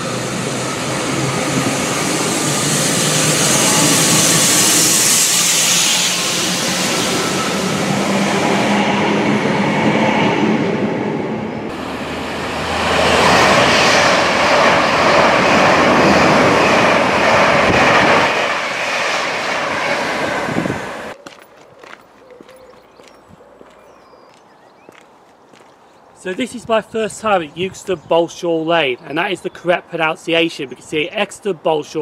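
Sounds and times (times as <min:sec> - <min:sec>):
electric train motor hum: 0:00.0 - 0:09.4, 0:11.7 - 0:18.3
train passing with rushing roar: 0:00.0 - 0:21.2.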